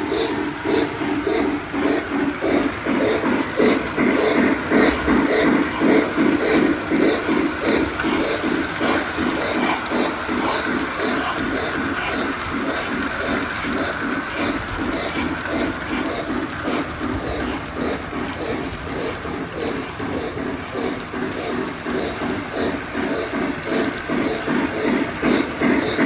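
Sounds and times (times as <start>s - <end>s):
toy train wheels clattering: 0.0s - 26.0s.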